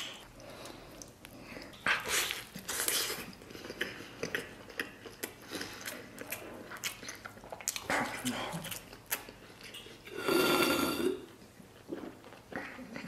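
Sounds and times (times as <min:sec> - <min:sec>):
person biting and chewing meat: 0:01.9 - 0:07.9, 0:08.5 - 0:10.2.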